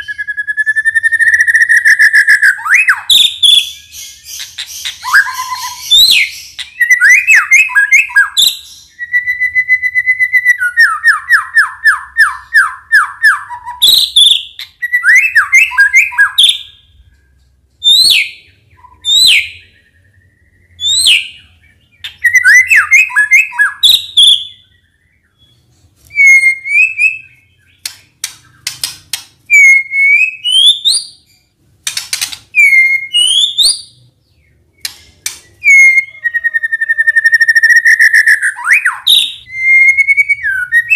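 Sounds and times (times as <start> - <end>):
shama singing whistled phrases: 4.5 - 16.8, 22.1 - 27.5, 29.5 - 31.2, 35.5 - 40.9.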